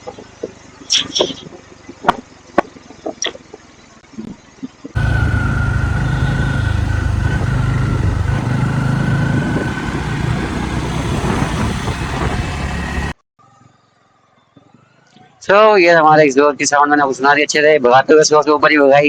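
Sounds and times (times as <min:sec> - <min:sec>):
motorcycle engine rumble: 0:04.6 - 0:13.2.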